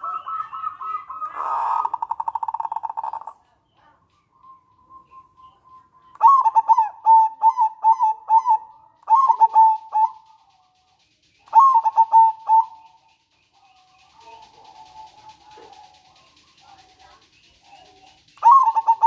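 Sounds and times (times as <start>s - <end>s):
zebra dove cooing: 0.0s - 3.6s, 6.1s - 10.4s, 11.5s - 13.0s, 14.0s - 19.0s.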